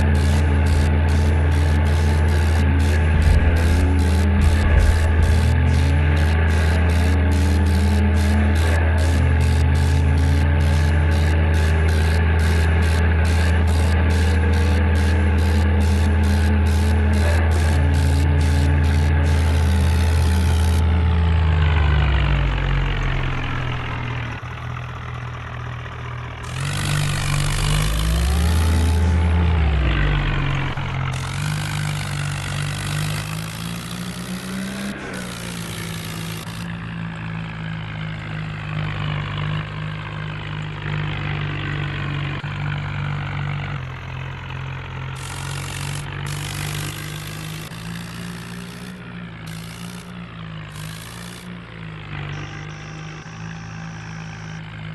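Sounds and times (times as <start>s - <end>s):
tractor engine revving: 0.0s - 54.9s.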